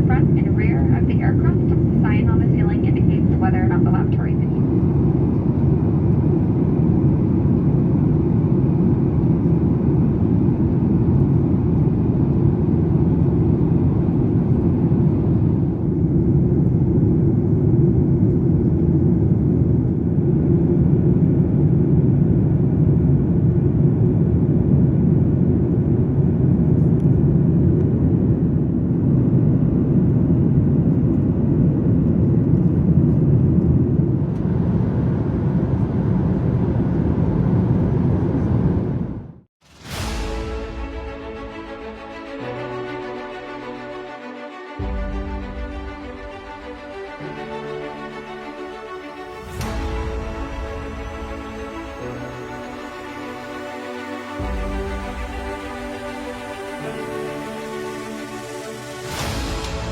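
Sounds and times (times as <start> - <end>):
aircraft engines rumbling: 0.0 - 39.4.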